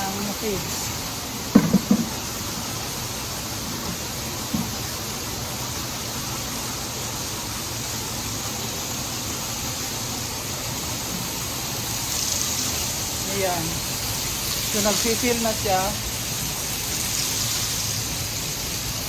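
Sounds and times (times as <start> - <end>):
small knock: 1.5 - 2.2.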